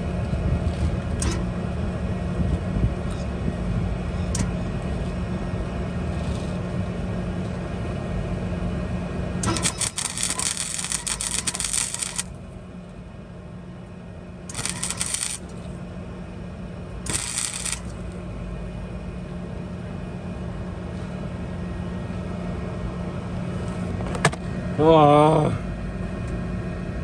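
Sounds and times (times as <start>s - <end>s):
steady low hum: 0.0s - 27.0s
welding arc crackling: 9.4s - 12.6s, 14.5s - 15.8s, 17.0s - 18.2s.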